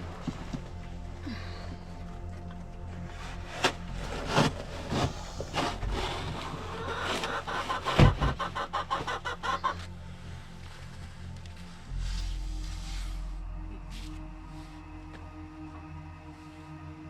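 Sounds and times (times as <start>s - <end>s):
low hum: 0.0s - 7.6s, 9.8s - 17.0s
chickens clucking: 4.4s - 10.2s.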